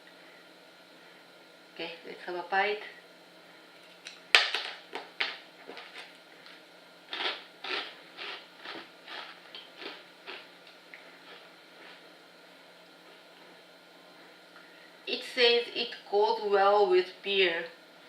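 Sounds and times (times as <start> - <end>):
crunchy chewing: 5.3 - 12.1
crunchy snack bite: 7.1 - 10.5.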